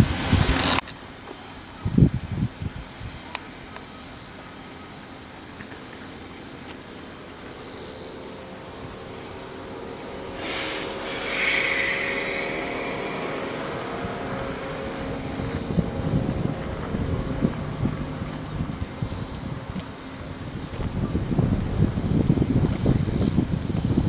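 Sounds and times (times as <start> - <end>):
steam hissing: 9.0 - 18.8.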